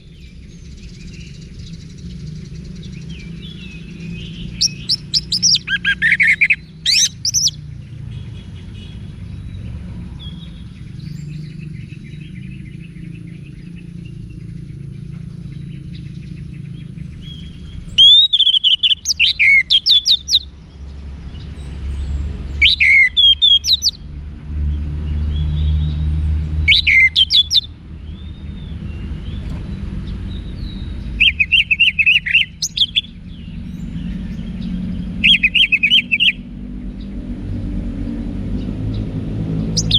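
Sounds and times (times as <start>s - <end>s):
steady low rumble: 0.0s - 22.5s
thrush singing whistled notes: 0.0s - 24.0s, 26.6s - 36.5s, 39.5s - 39.9s.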